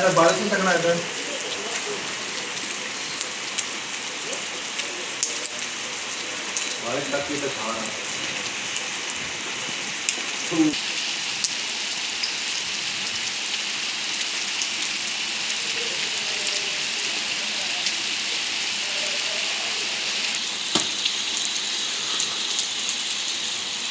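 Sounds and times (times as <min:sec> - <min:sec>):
heavy rain falling: 0:00.0 - 0:23.9
small taps: 0:20.8 - 0:21.1.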